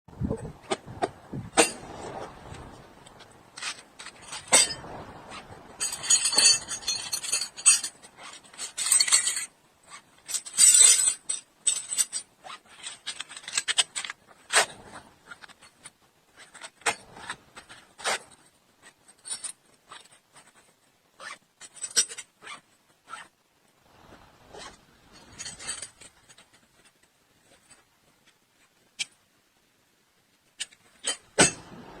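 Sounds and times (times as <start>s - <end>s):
metal hand tools clinking: 3.6s - 5.0s, 5.8s - 14.2s.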